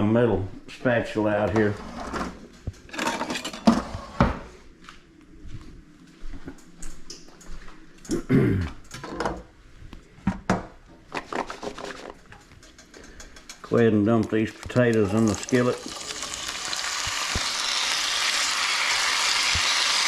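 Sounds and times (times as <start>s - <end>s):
metal utensils clinking and clattering: 2.8s - 3.8s, 11.7s - 16.5s.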